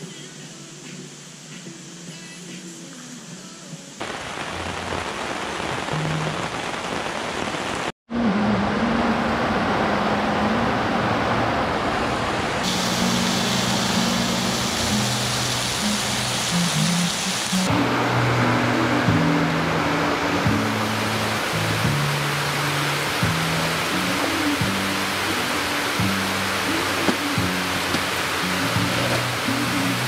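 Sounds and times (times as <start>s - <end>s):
heavy rain hissing: 0.0s - 8.0s, 10.4s - 30.0s
music with low sustained notes: 12.7s - 30.0s.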